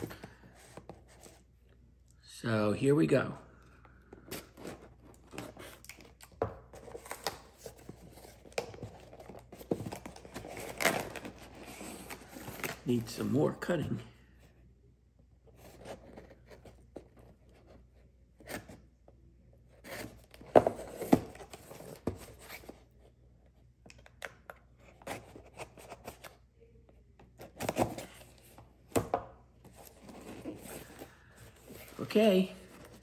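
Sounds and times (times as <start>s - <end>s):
knife cutting open a package: 6.8s - 12.8s.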